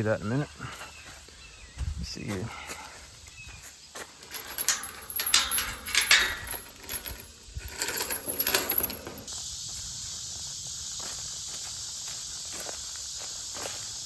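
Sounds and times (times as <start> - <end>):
gate latch and chain rattling: 4.2 - 9.3.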